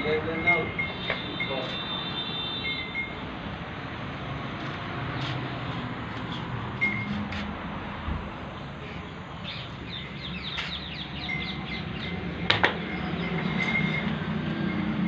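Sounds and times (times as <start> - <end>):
small birds chirping: 9.0 - 14.1.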